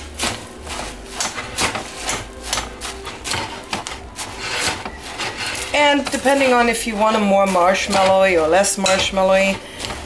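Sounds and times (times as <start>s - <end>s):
utensil scraping and knocking bowl: 0.0s - 10.0s.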